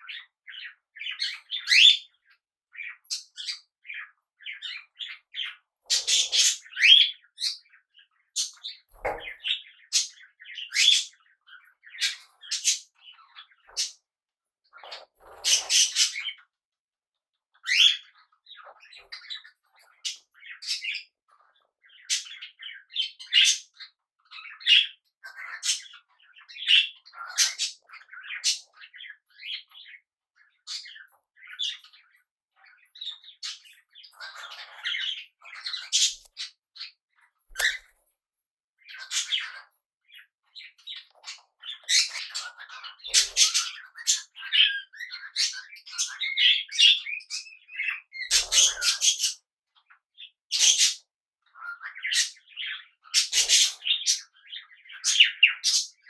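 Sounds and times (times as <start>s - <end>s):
parrots chattering and squawking: 4.6s - 11.2s, 14.8s - 16.4s, 17.6s - 32.0s, 32.6s - 36.9s, 37.5s - 38.0s, 38.8s - 49.4s, 50.5s - 56.0s.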